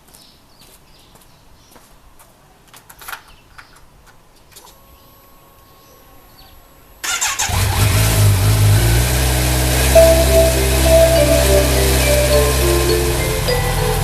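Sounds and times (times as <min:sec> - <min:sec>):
motorcycle engine running loudly: 0:07.5 - 0:10.0.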